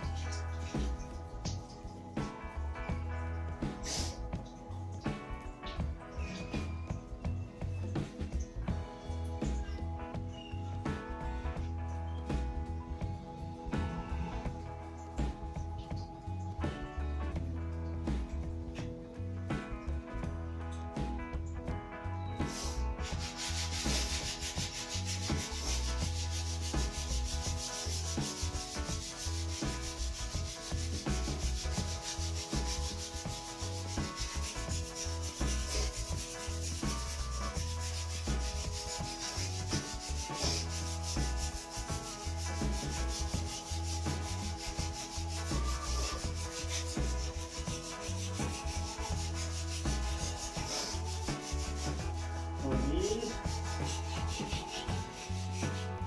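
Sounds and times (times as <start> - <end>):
sandpaper rubbing on wood: 22.4 - 56.0.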